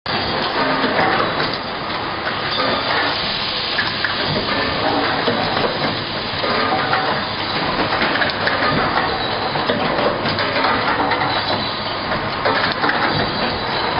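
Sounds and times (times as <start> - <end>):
bottle making machine running: 0.1 - 13.9.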